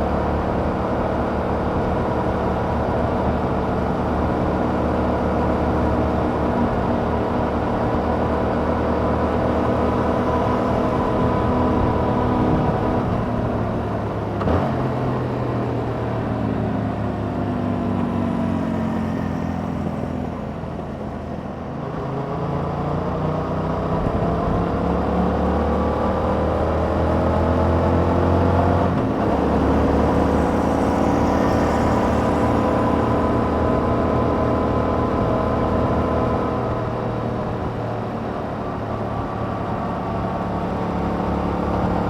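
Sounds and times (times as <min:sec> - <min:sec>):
motorcycle engine running: 0:29.0 - 0:42.0.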